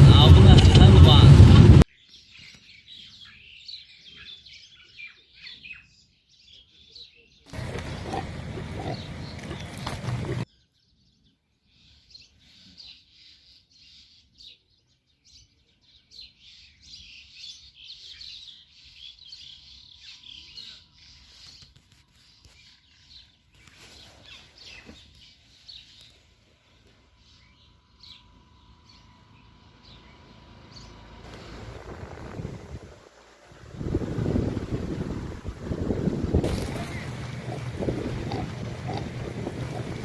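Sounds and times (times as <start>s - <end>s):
birds chirping faintly: 1.9s - 40.0s.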